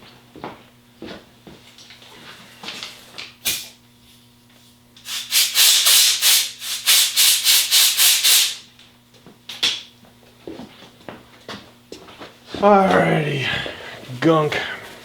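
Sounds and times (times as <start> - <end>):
compressed air blowgun blasts: 5.0 - 8.6.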